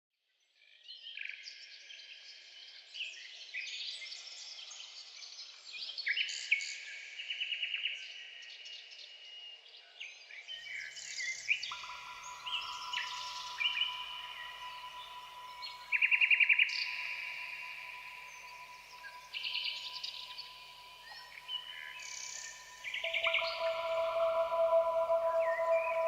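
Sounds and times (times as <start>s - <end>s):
songbirds singing: 11.4s - 26.0s
steady held tone: 11.7s - 26.0s
low hum: 22.9s - 26.0s.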